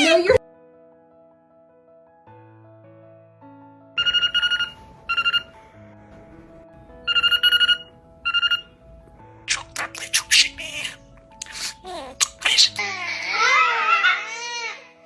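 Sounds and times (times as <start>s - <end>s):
background music: 0.0s - 15.0s
telephone ringing: 4.0s - 5.6s, 7.0s - 8.8s.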